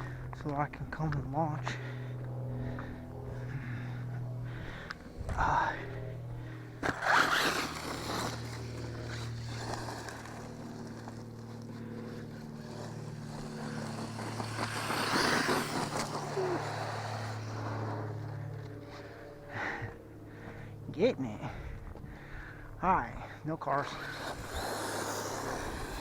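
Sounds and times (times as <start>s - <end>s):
low hum: 0.0s - 26.0s
rc truck tires scraping dirt: 5.0s - 19.8s, 23.2s - 26.0s.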